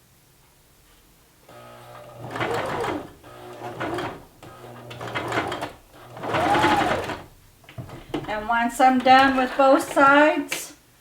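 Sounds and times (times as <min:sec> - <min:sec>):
sewing machine stitching: 0:01.5 - 0:10.2.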